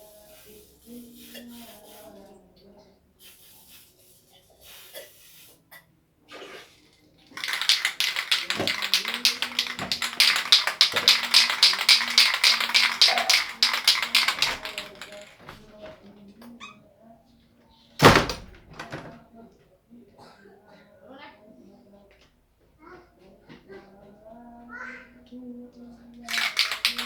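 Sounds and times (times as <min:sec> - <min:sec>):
rapid rhythmic tapping: 0:07.4 - 0:16.0, 0:26.3 - 0:27.0.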